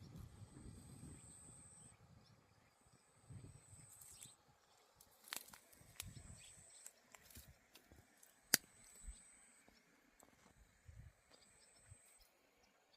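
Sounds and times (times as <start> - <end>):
high insect whine: 0.0 - 2.1.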